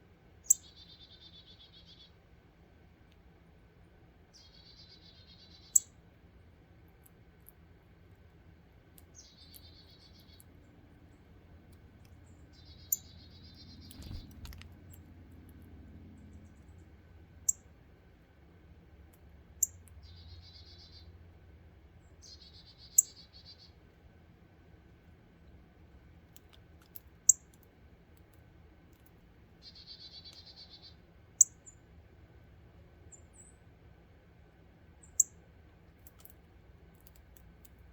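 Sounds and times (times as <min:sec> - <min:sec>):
low background hum: 0:00.0 - 0:37.9
songbird chip notes: 0:11.7 - 0:15.0
buzzy high bird chatter: 0:12.2 - 0:15.0.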